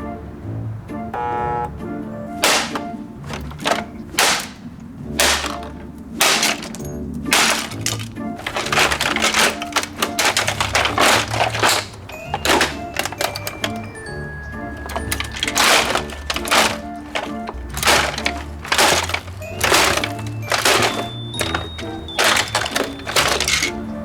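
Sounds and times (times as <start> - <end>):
heavy blows smashing plastic: 1.2 - 24.0
plastic cracking: 2.3 - 24.0.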